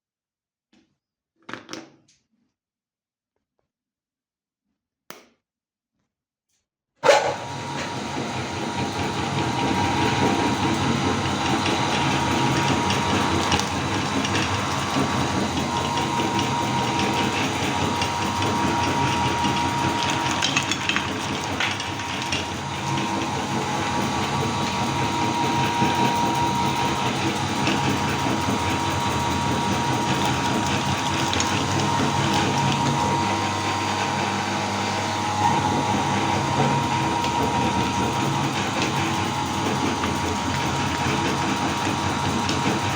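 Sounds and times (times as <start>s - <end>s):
grinder crackles: 7.0s - 34.3s
meat grinder whirring: 7.0s - 42.9s.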